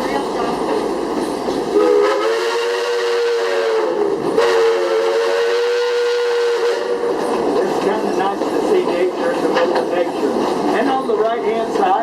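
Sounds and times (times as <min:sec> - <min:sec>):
train running: 0:00.0 - 0:12.0
steam locomotive whistle: 0:01.8 - 0:07.2.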